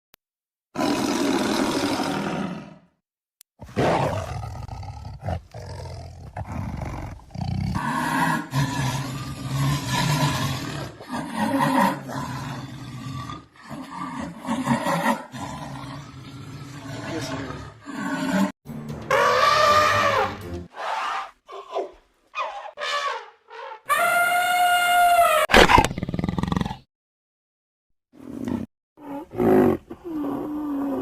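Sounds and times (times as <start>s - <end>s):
big cat roaring: 0.8s - 2.9s, 3.7s - 18.5s.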